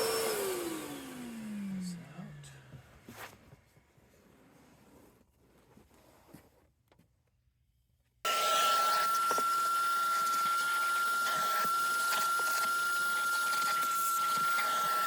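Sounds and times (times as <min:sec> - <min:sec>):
vacuum motor whining: 0:00.0 - 0:02.7, 0:08.3 - 0:15.0.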